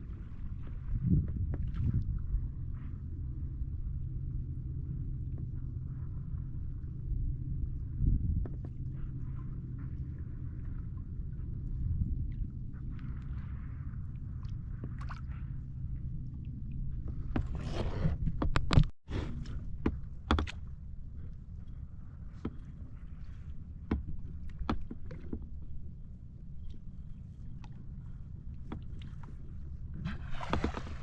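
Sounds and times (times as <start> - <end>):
low rumble: 0.0 - 31.0
paddle splashing water: 28.7 - 31.0.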